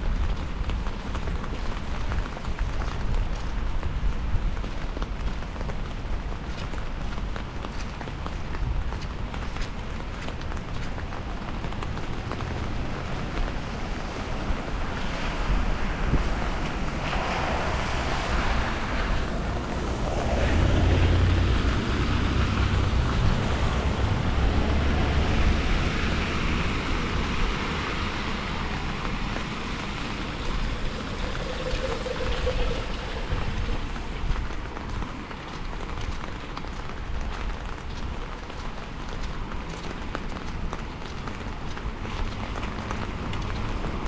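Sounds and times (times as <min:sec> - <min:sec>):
rain: 0:00.0 - 0:44.0
traffic on wet road: 0:00.0 - 0:44.0.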